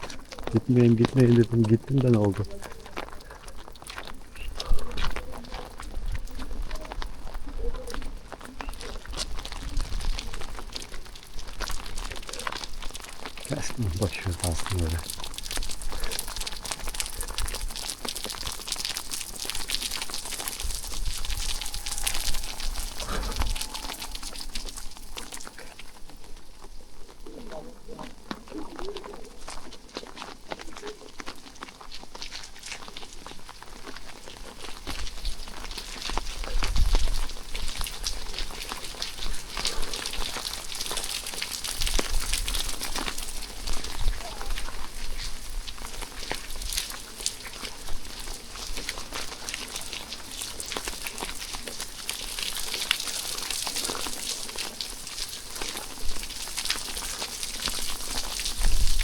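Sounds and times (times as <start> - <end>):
rain falling: 0.4 - 6.2, 9.6 - 26.1, 37.1 - 59.0.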